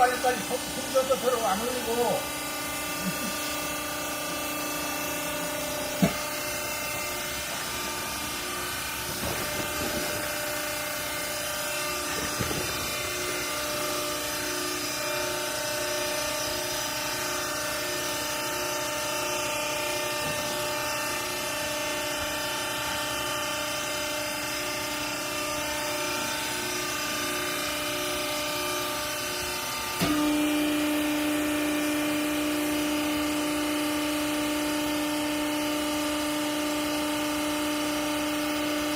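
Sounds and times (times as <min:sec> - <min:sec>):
baling machine motor hum: 0:00.0 - 0:36.4
knocks: 0:06.0 - 0:06.2.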